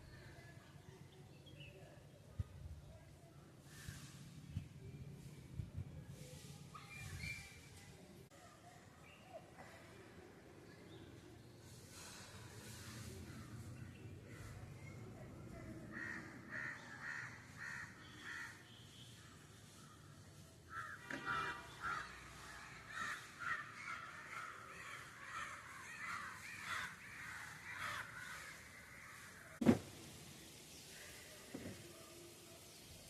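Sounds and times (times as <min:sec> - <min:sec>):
crows cawing: 0:15.9 - 0:18.6, 0:20.7 - 0:29.2
sharp thump: 0:29.6 - 0:29.9.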